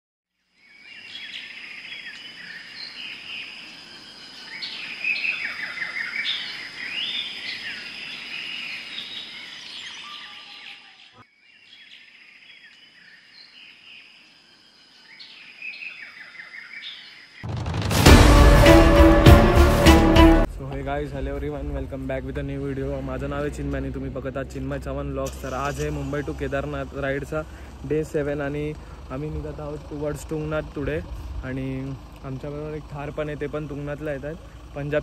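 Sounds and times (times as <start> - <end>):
birds chirping and singing: 0.6 - 17.4
loud music: 17.5 - 20.5
steady high tone: 17.6 - 22.0.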